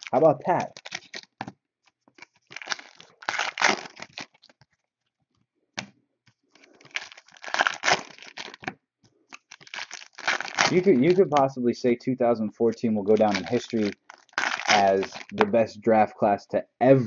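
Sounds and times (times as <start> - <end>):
wrappers crinkling and tearing: 0.0 - 1.4, 2.1 - 4.8, 6.5 - 8.7, 9.3 - 11.4, 13.1 - 15.4.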